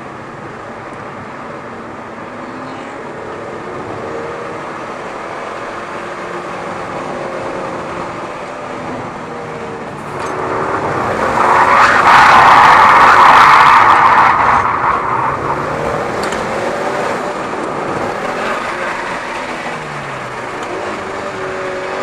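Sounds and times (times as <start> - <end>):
car engine at speed: 0.0 - 22.0
road and wind noise: 0.0 - 22.0.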